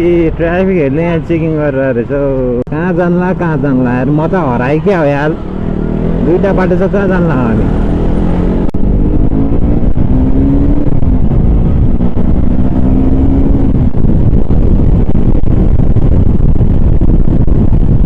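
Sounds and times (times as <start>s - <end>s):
wind on microphone: 2.9s - 18.0s
motorcycle engine running: 5.3s - 18.0s.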